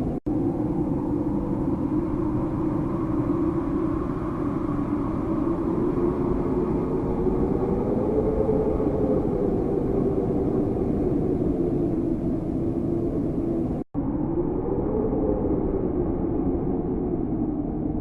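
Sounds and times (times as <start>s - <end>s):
howling wind: 0.0s - 18.0s.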